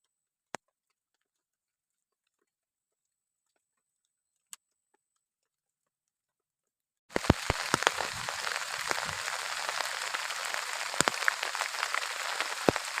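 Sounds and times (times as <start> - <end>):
heavy rain falling: 7.1 - 13.0.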